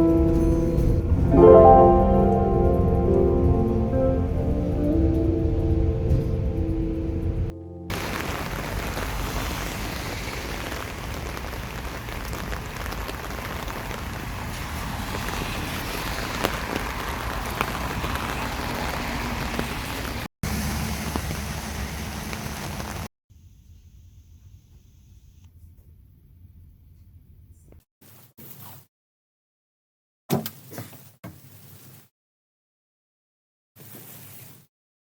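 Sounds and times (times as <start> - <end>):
steady rain hiss: 1.2 - 23.1
faint raindrop ticks: 7.9 - 20.2.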